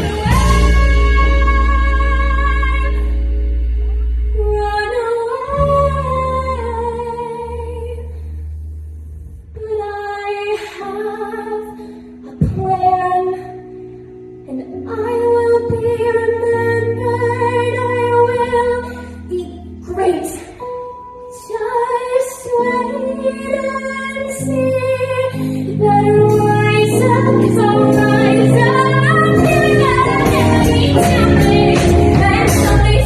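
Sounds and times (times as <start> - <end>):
woman singing: 0.0 - 3.1, 4.3 - 8.1, 9.6 - 13.6, 14.4 - 20.7, 21.3 - 33.0
instrumental backing track: 0.0 - 33.0.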